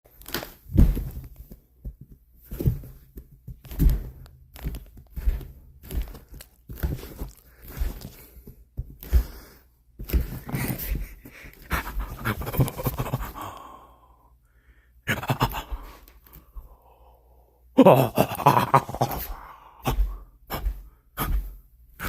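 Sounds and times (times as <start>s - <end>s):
scuffling and rustling: 0.1s - 13.3s
dull thuds: 0.6s - 9.4s.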